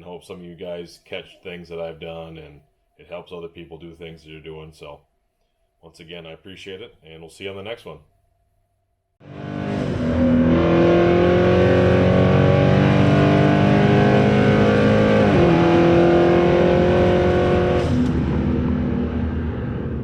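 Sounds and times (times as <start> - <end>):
car engine running: 9.2 - 20.0.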